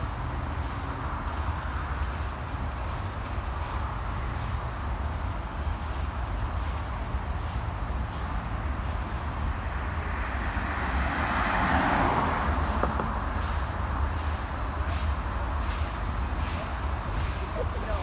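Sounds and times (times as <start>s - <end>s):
vehicle passing by: 10.2s - 13.2s.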